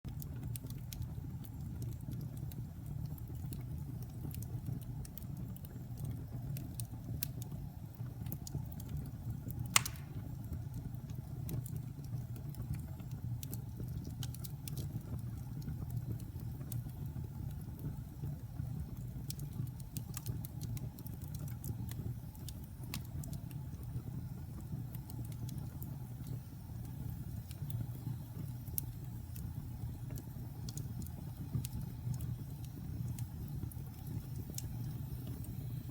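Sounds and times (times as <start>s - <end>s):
logs crackling in fire: 0.1s - 35.9s
low fire rumble: 0.1s - 35.9s
loud log pop: 9.8s - 10.2s.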